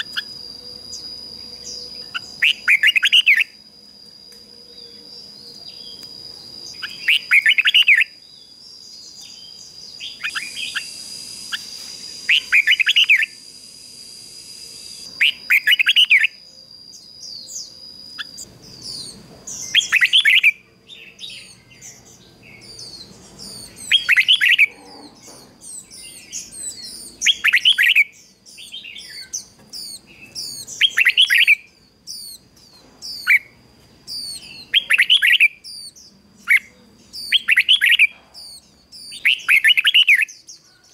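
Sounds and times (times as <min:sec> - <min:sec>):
bird whistled song phrases: 0:00.0 - 0:03.6, 0:04.4 - 0:32.4, 0:33.0 - 0:40.9
high bird chirps: 0:00.0 - 0:03.6, 0:04.3 - 0:40.9
steady high-pitched tone: 0:10.1 - 0:18.5.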